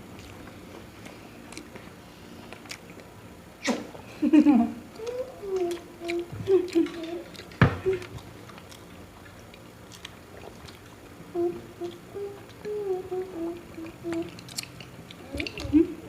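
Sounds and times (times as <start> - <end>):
chewing and handling food clicks: 0.0 - 3.2, 4.9 - 11.1, 14.1 - 15.9
closed-mouth humming: 0.0 - 16.0.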